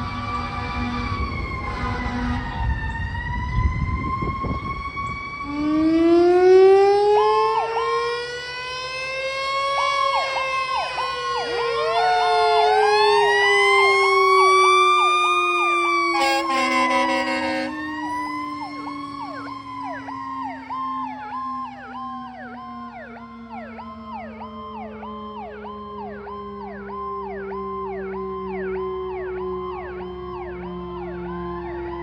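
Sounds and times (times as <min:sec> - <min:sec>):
fire engine rumble: 0:00.0 - 0:32.0
wail siren: 0:00.0 - 0:32.0
fast yelp siren: 0:00.4 - 0:32.0
horn blast: 0:15.9 - 0:18.0.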